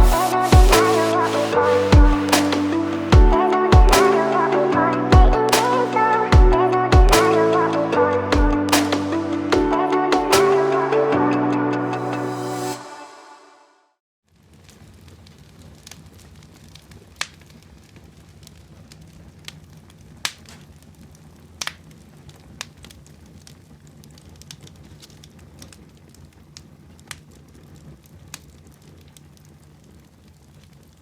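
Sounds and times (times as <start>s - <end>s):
wood fire crackling: 14.3s - 31.0s.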